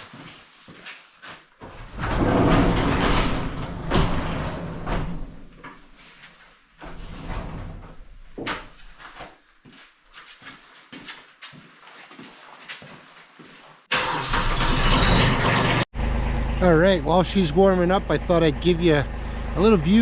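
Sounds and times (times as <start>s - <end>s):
large door rolling open: 1.7s - 5.7s, 6.8s - 8.4s, 14.0s - 15.9s.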